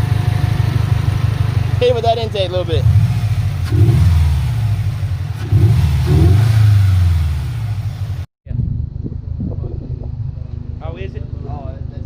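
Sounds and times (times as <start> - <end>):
car engine revving: 0.0 - 8.3.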